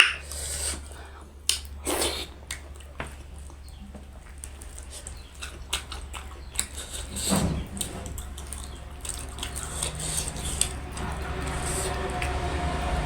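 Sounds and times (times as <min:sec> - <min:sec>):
wet slurp: 0:00.0 - 0:02.8, 0:04.7 - 0:12.4
small mouth clicks: 0:00.0 - 0:07.3
mouth smacking and chewing: 0:00.0 - 0:12.4.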